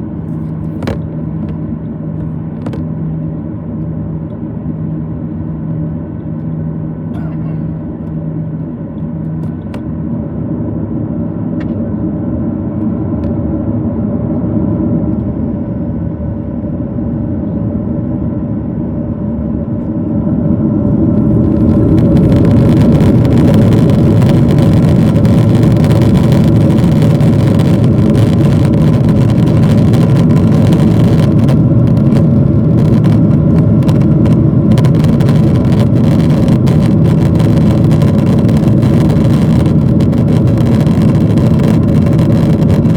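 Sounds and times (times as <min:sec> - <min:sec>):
rush of engine and airflow: 0:00.0 - 0:42.9
jet engines spooling up: 0:12.0 - 0:42.9.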